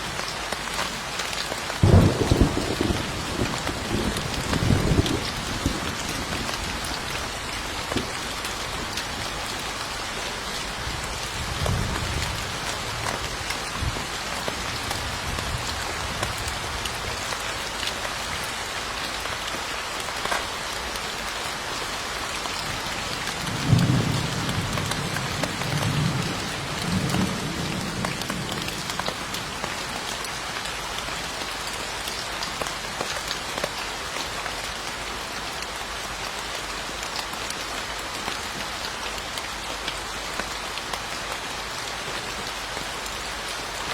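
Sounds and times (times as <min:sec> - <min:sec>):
heavy rain falling: 0:00.0 - 0:43.9
distant thunder rumbling: 0:01.8 - 0:06.6.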